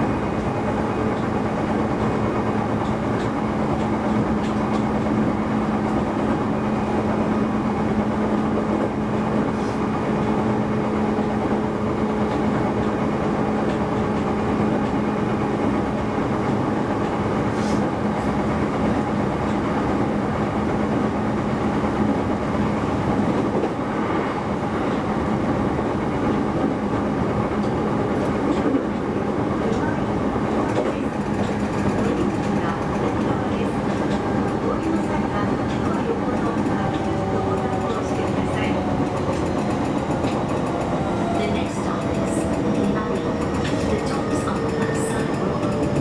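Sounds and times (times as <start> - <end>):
train wheels rumbling on rail: 0.0 - 46.0
faint clickety-clack: 2.0 - 5.0, 26.2 - 46.0.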